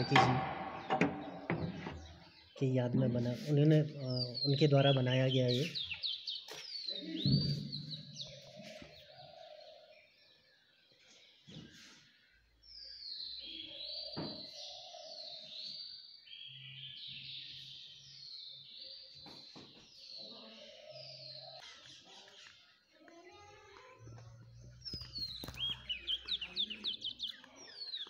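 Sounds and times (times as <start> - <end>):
birds singing high sweeping notes: 0.0 - 10.2, 24.6 - 28.0.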